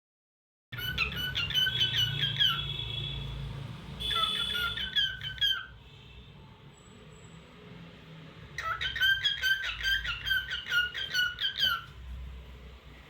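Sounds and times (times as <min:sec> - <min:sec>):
cockatiel chirping and whistling: 0:00.8 - 0:02.6, 0:04.1 - 0:05.7, 0:08.6 - 0:11.9.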